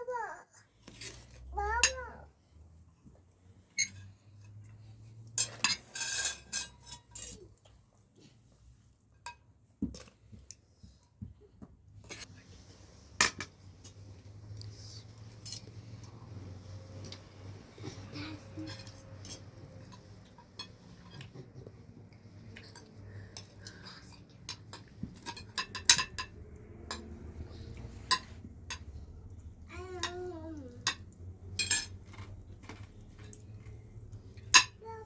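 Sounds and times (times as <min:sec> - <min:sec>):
cutlery and dishes clinking: 0:05.3 - 0:07.6, 0:17.9 - 0:21.6, 0:22.6 - 0:27.3, 0:28.0 - 0:29.0, 0:30.8 - 0:34.8.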